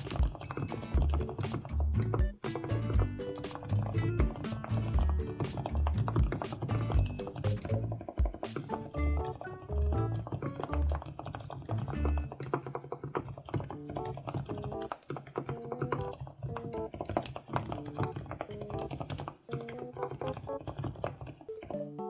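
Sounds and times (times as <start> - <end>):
light background music: 0.0 - 11.1, 21.5 - 22.0
fast typing on mechanical keyboard: 0.0 - 22.0.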